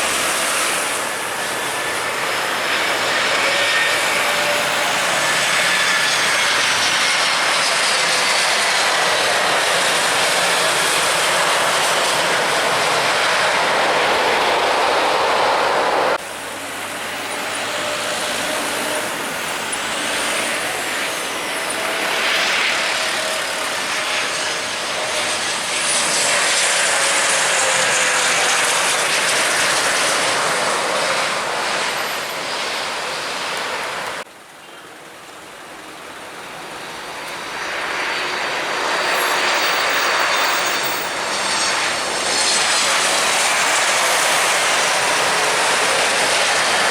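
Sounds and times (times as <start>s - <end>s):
jet airliner passing with whine: 0.0s - 34.3s, 36.4s - 46.9s.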